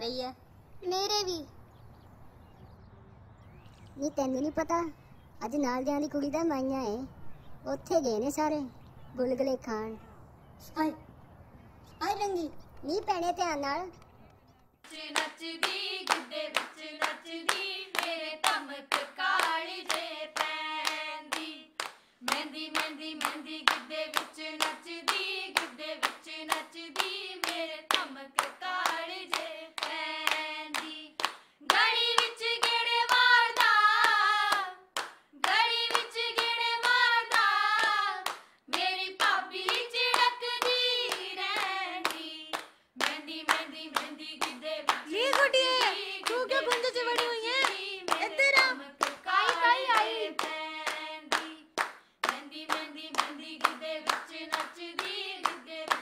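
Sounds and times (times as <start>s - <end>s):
hand claps: 14.8s - 56.0s
women singing folk song: 14.8s - 56.0s.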